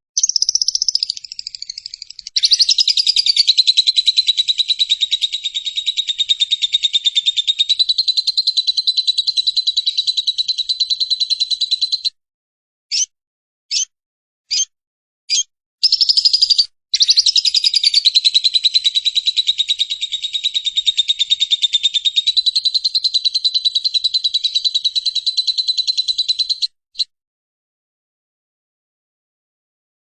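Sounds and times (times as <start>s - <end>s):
lovebird chattering: 0.2s - 12.1s, 15.3s - 26.7s.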